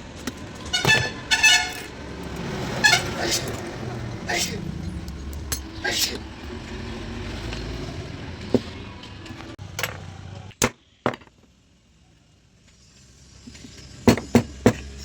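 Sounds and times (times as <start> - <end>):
low rumble: 3.5 - 8.5.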